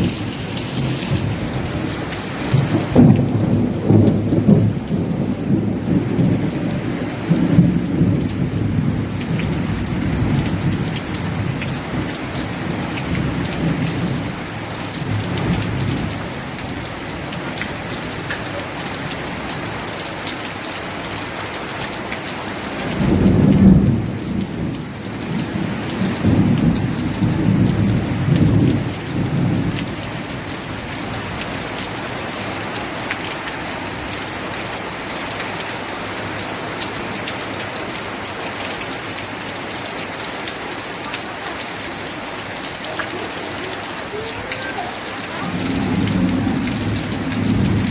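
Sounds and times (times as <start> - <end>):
thunder rumbling: 0.0 - 12.1, 42.4 - 47.9
steady rain: 0.0 - 47.9.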